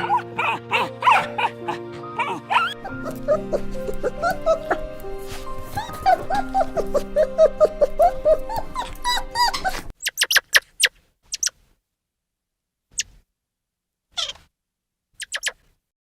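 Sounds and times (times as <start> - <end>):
background music: 0.0 - 9.9
dog whimpering: 0.0 - 9.9
dog yelping: 0.0 - 10.3.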